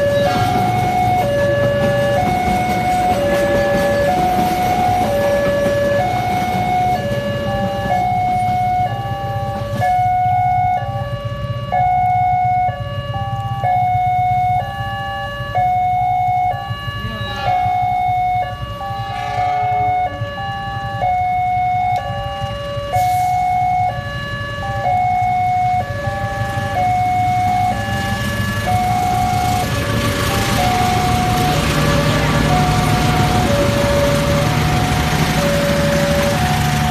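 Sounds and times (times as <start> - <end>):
two-tone crossing alarm: 0.0 - 36.9
rushing noise: 18.9 - 20.1.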